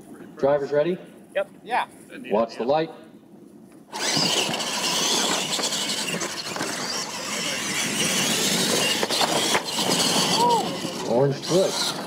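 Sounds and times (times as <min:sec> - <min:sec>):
toy truck motors whining: 0:03.9 - 0:12.0
tyres crunching on dirt: 0:03.9 - 0:12.0.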